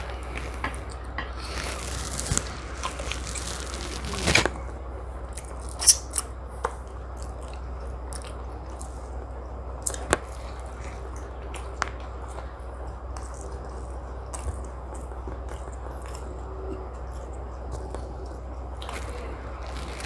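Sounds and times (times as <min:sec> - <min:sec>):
steady low hum: 0:00.0 - 0:20.0
brief rustling: 0:01.4 - 0:04.8
chewing and mouth smacks: 0:07.2 - 0:09.2, 0:09.8 - 0:20.0.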